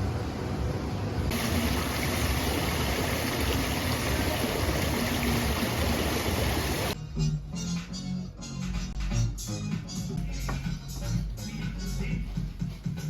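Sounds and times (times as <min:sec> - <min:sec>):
running water: 0:01.3 - 0:07.0
music: 0:07.0 - 0:13.0.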